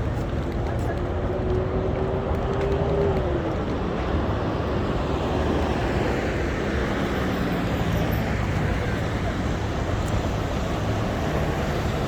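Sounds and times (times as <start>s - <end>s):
passing vehicles rushing: 0.0s - 12.0s.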